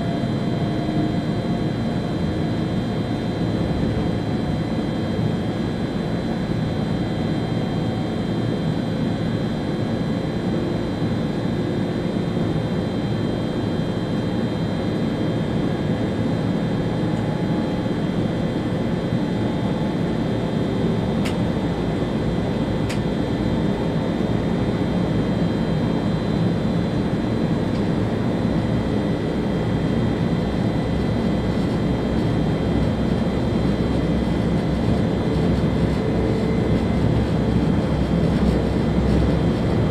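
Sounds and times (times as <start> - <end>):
train wheels rumbling on rail: 34.4 - 39.9.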